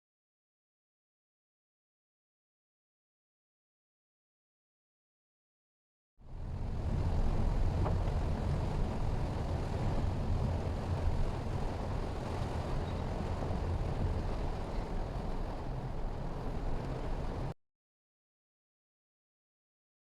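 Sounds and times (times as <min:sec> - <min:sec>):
car engine and road noise: 0:06.3 - 0:17.6.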